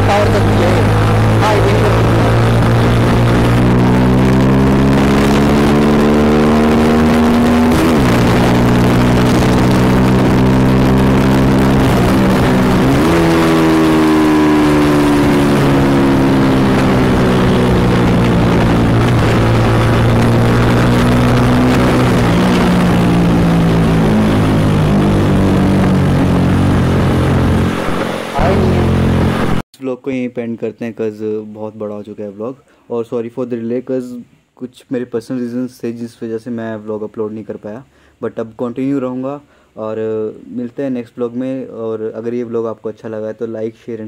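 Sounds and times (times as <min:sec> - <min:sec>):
motorcycle engine revving: 0:00.0 - 0:29.6.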